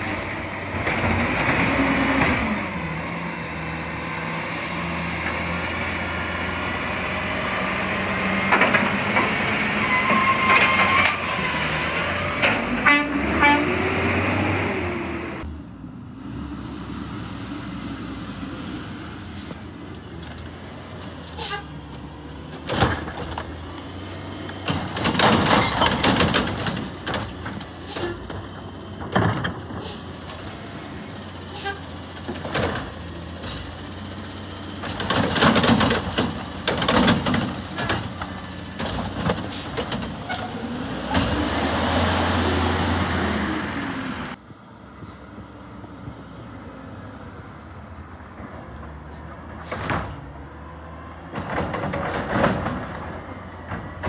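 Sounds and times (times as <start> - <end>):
carts clattering: 7.5 - 14.3, 24.5 - 30.4.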